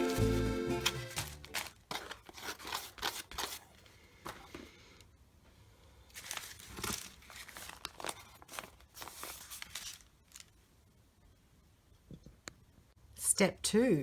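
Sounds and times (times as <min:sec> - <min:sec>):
paper rustling and crinkling: 0:00.0 - 0:04.7, 0:06.1 - 0:10.6.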